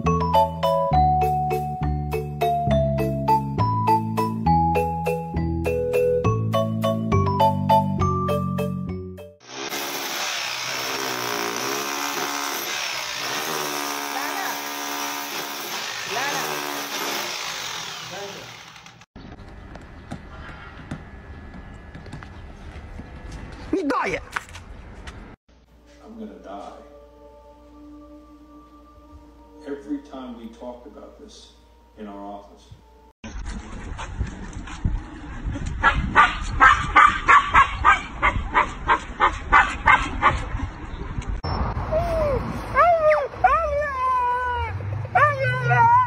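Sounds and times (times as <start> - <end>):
dog yipping: 35.8 - 40.4.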